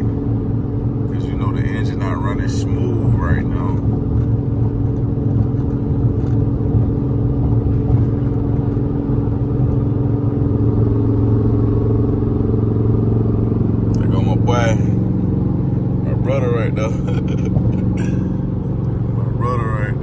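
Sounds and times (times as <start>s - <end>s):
car engine running with misfire: 0.0s - 20.0s.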